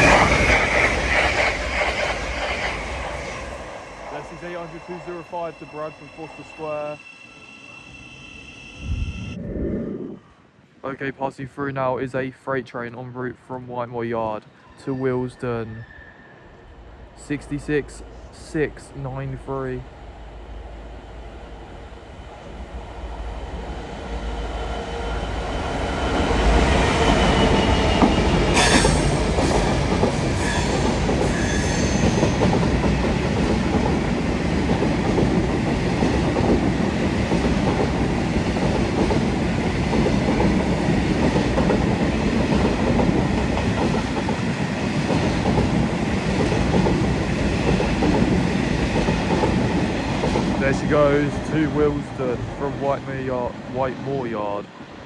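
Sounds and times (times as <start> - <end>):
wagon wheels rumbling on rail: 0.0 - 6.7, 24.3 - 53.8
diesel locomotive passing: 0.0 - 10.1, 14.4 - 55.0.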